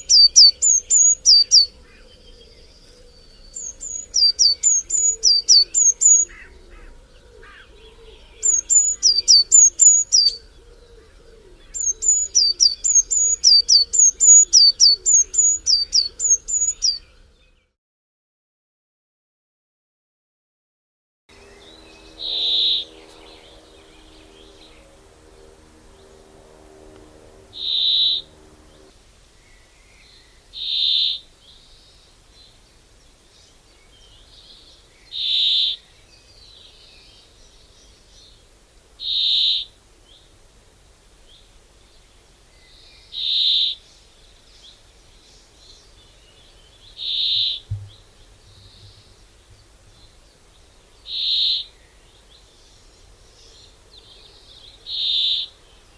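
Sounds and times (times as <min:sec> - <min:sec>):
bird calling: 0:00.0 - 0:17.1, 0:21.4 - 0:28.9, 0:35.1 - 0:35.9, 0:39.0 - 0:39.8, 0:46.9 - 0:50.2, 0:51.0 - 0:51.8, 0:54.2 - 0:55.6
low steady hum: 0:21.3 - 0:30.5, 0:43.8 - 0:54.9
soft low thump: 0:47.7 - 0:49.6.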